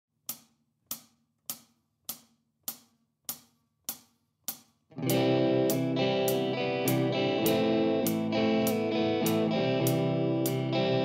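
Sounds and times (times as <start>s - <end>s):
cymbal count-in taps: 0.3s - 11.0s
rock band playing: 5.0s - 11.0s.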